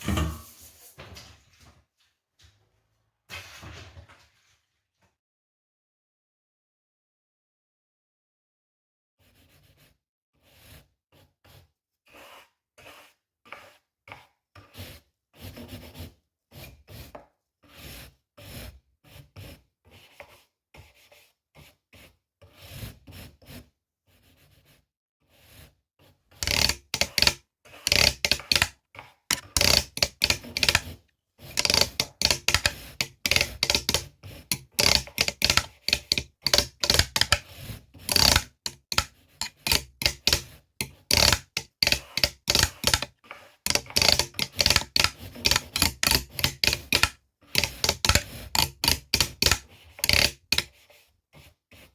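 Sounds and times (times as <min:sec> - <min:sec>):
rubbing or scraping strokes: 0:00.0 - 0:01.3, 0:26.4 - 0:28.7, 0:29.3 - 0:51.0.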